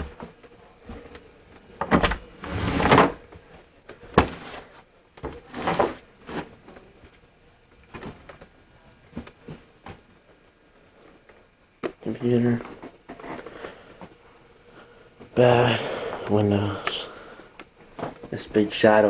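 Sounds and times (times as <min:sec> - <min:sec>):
rustling of things handled: 0:00.9 - 0:07.2.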